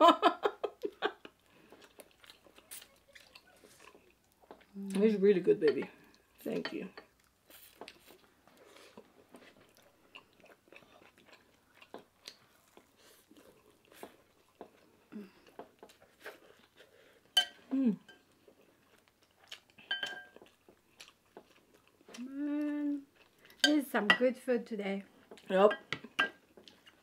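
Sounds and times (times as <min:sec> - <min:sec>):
chewing and lip-smacking: 0:01.2 - 0:05.0, 0:07.1 - 0:17.3, 0:18.2 - 0:23.6, 0:25.1 - 0:27.0.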